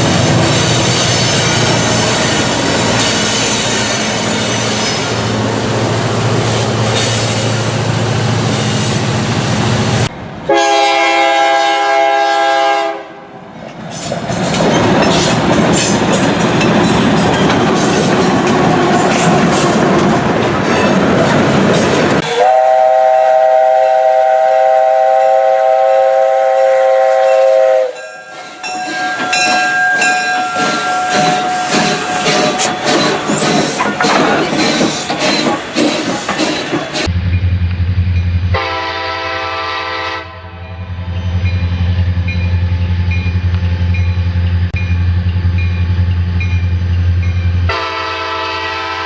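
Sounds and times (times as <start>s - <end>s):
passing train: 0.0s - 49.0s
train horn chord: 10.5s - 13.2s, 22.2s - 28.0s, 38.5s - 40.9s, 47.7s - 49.0s
wheels clicking over rail joints: 13.6s - 22.2s, 28.5s - 37.1s.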